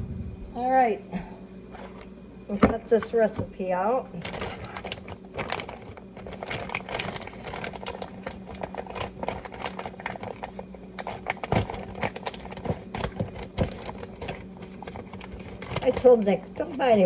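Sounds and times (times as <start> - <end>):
steady low hum: 0.0 - 17.0
bag crinkling: 4.1 - 17.0.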